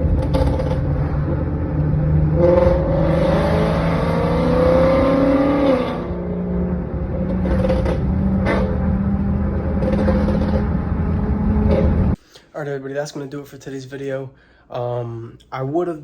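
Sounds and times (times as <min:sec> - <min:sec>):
car engine accelerating: 0:00.0 - 0:12.2.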